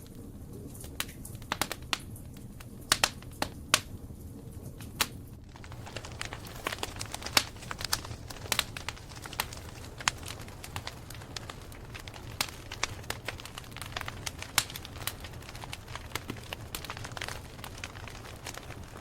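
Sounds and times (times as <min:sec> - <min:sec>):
campfire crackling and popping: 0:05.0 - 0:19.0.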